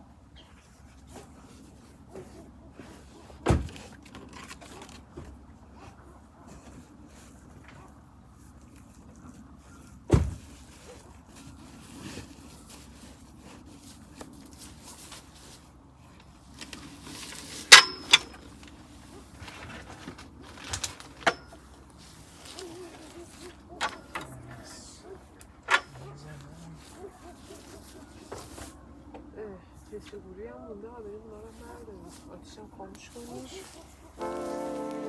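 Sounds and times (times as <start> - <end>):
camping gear knocks and clanks: 2.2 - 5.4, 10.1 - 11.0, 16.6 - 24.4, 25.6 - 26.0
sharp ringing clank: 17.7 - 18.4.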